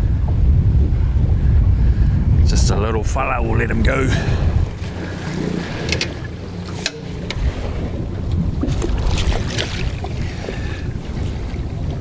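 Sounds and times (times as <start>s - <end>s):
steady deep rumble: 0.0s - 12.0s
wind buffeting microphone: 0.0s - 12.0s.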